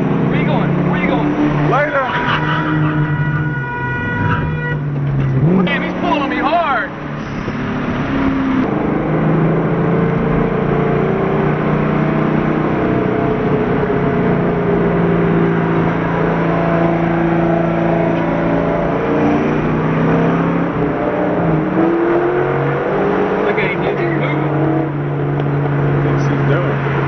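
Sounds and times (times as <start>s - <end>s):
road noise: 0.0s - 27.0s.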